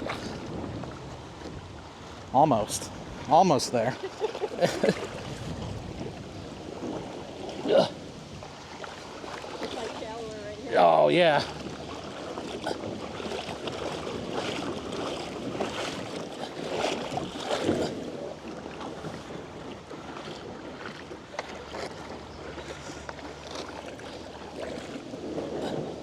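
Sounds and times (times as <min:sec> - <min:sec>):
kayak dragged through water: 0:00.0 - 0:26.0
river water sloshing and splashing: 0:00.0 - 0:26.0.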